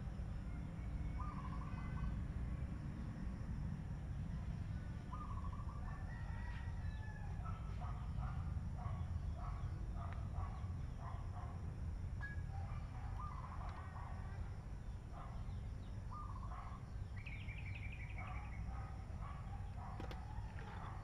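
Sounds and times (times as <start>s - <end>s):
birds calling and chirping: 0.9s - 2.2s, 4.9s - 11.6s, 12.2s - 21.0s.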